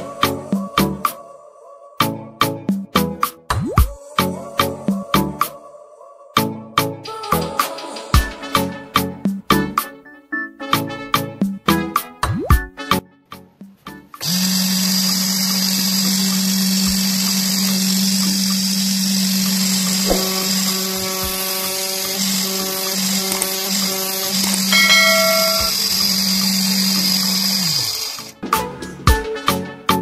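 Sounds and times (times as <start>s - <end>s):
electric motor whining: 14.2s - 28.4s.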